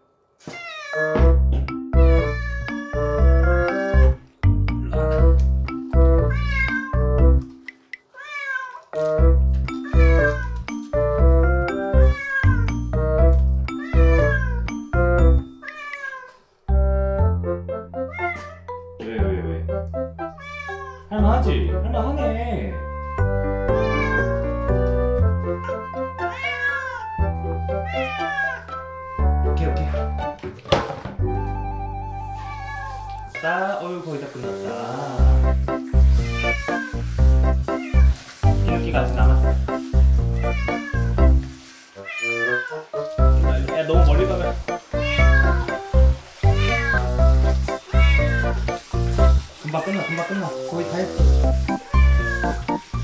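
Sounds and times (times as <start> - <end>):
cat meowing: 0.4 - 1.2, 2.0 - 4.2, 6.2 - 7.0, 8.1 - 8.9, 9.8 - 10.6, 11.8 - 12.8, 13.8 - 14.7, 15.6 - 16.4, 18.1 - 18.7, 20.3 - 21.1, 23.0 - 24.6, 25.4 - 27.2, 27.8 - 29.4, 31.3 - 33.5, 36.2 - 37.0, 37.8 - 38.2, 40.4 - 41.2, 42.0 - 42.8, 45.0 - 45.8, 46.4 - 47.2, 47.9 - 48.6, 49.8 - 50.5, 51.9 - 52.7
bouncy background music: 1.0 - 8.1, 9.0 - 16.0, 16.7 - 20.5, 21.1 - 33.6, 34.6 - 53.0.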